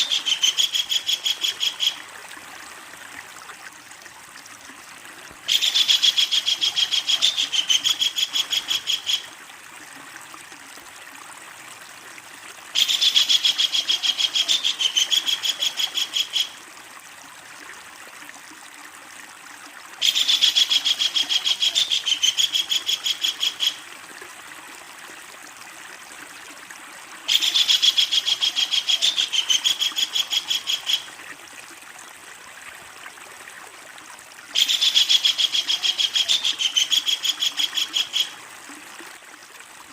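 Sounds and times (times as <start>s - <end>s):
kingfisher cackling call: 0.0s - 2.0s, 5.5s - 9.3s, 27.3s - 31.1s, 34.6s - 38.4s.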